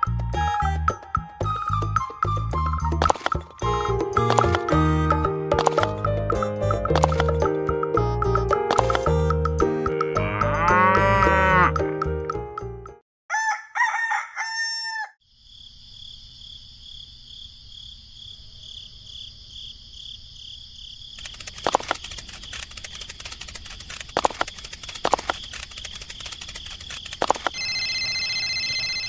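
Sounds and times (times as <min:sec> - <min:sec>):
sharp clicks and knocks: 0:03.0 - 0:03.6, 0:06.9 - 0:07.5, 0:21.2 - 0:27.6
rooster crowing: 0:13.3 - 0:15.2.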